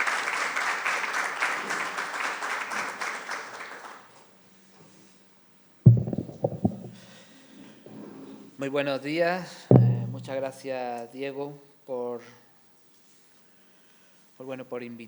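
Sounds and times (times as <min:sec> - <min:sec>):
audience applauding: 0:00.0 - 0:04.0
microphone handling thumps: 0:05.9 - 0:07.0, 0:09.7 - 0:10.5.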